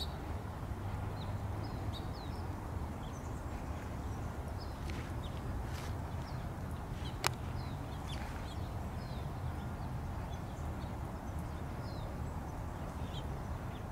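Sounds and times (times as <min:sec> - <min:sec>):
steady low rumble: 0:00.0 - 0:12.3
small birds chirping: 0:00.0 - 0:13.9.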